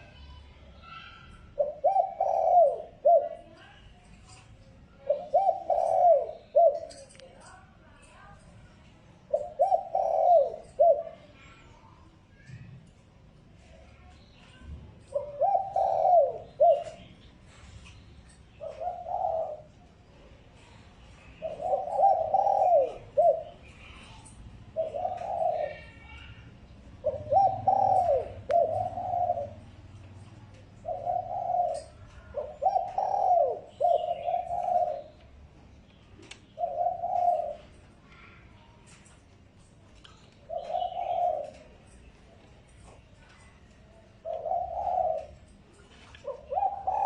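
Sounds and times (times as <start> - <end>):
dove cooing: 1.5 - 3.8, 5.0 - 7.1, 9.3 - 11.6, 15.0 - 17.2, 18.5 - 19.8, 21.3 - 24.1, 24.7 - 35.2, 36.5 - 38.3, 40.4 - 41.9, 44.2 - 45.5, 46.1 - 47.0.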